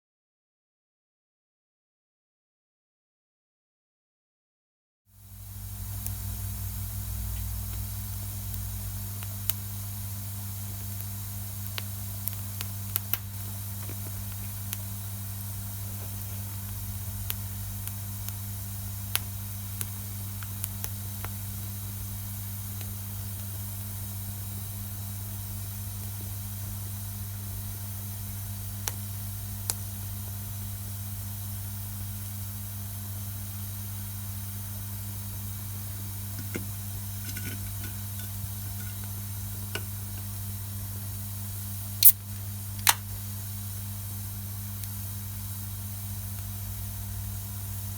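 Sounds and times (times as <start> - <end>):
fire hissing: 5.2 - 47.9
campfire crackling and popping: 5.3 - 21.7.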